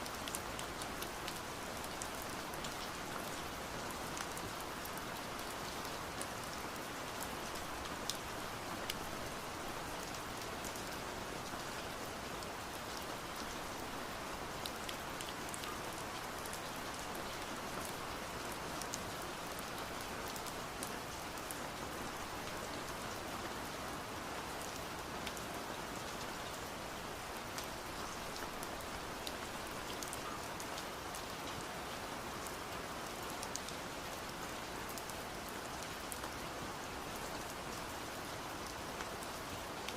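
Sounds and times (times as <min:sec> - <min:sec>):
muffled steady rain: 0:00.0 - 0:39.9.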